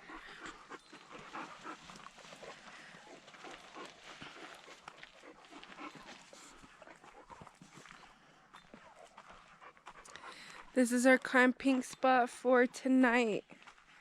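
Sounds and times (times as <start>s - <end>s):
dog making faint sounds: 0.0s - 10.8s.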